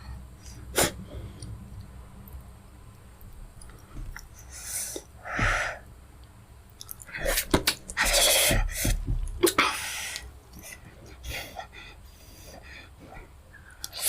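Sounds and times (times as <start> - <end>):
sharp breathy bursts: 4.4 - 5.9.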